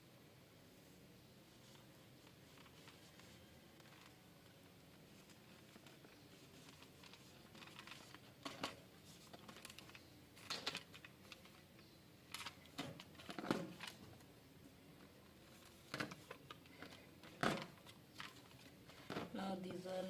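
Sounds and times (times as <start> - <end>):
rustling while handling plastic: 1.2 - 20.0
wiping plastic parts: 1.5 - 14.2.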